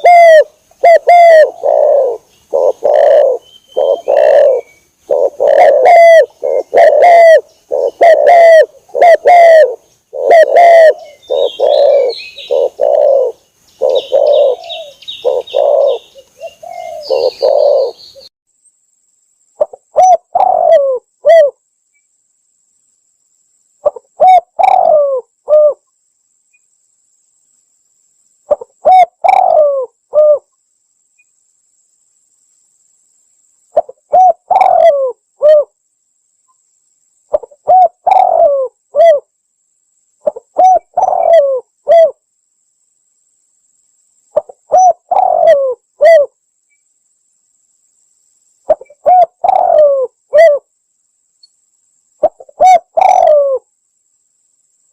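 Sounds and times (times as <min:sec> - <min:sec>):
dove cooing: 0:00.0 - 0:18.3, 0:19.6 - 0:21.6, 0:23.8 - 0:25.8, 0:28.5 - 0:30.5, 0:33.8 - 0:35.7, 0:37.3 - 0:39.3, 0:40.2 - 0:42.2, 0:44.4 - 0:46.4, 0:48.7 - 0:50.7, 0:52.2 - 0:53.7.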